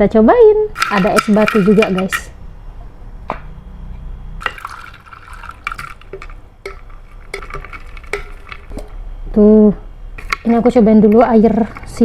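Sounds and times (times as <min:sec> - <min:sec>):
ice cubes clinking in a glass: 0:00.8 - 0:02.3, 0:04.4 - 0:08.7
liquid sloshing: 0:04.4 - 0:08.9.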